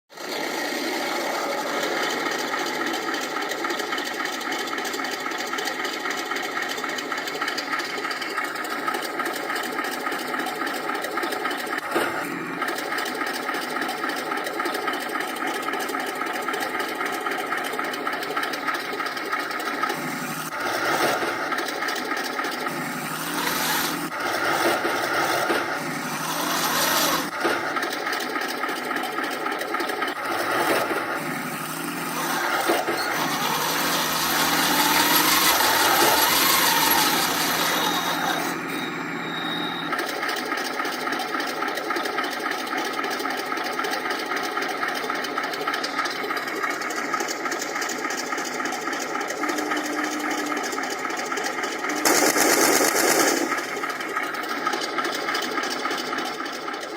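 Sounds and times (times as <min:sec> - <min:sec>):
tank engine through speaker: 0:00.1 - 0:43.2, 0:43.8 - 0:56.9
track squeals: 0:22.6 - 0:27.8, 0:30.1 - 0:40.4, 0:49.3 - 0:54.4.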